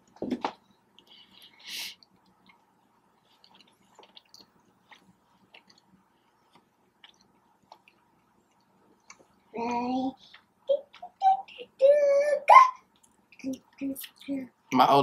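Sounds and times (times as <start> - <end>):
person chewing: 0.8 - 9.5, 10.2 - 11.2.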